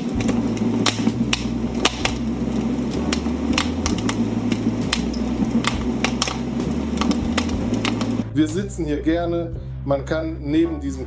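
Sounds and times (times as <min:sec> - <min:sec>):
wood fire crackling through speaker: 0:00.0 - 0:08.3.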